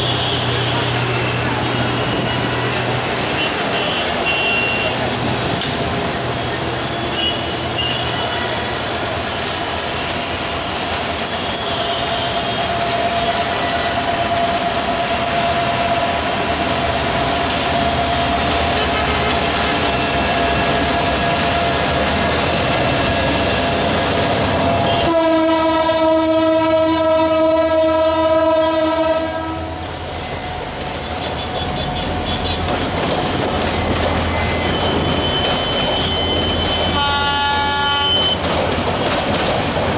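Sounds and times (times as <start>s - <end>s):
train rumbling on rails: 0.0s - 39.9s
train horn blast: 3.3s - 5.1s, 18.8s - 19.8s, 24.8s - 29.8s, 36.8s - 38.4s.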